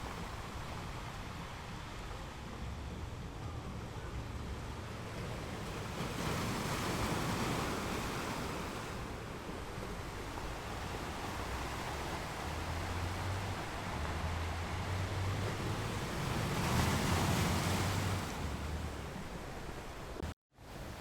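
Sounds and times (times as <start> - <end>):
ocean surf washing: 0.0 - 21.0
wave breaking: 9.8 - 20.2.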